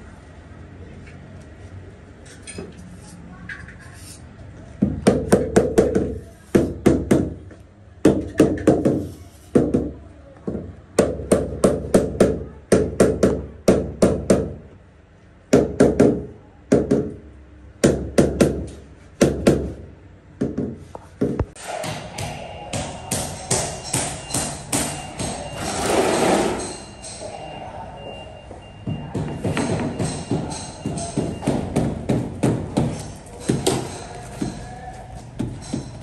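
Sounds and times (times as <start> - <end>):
hammer blows ringing: 21.6 - 36.0.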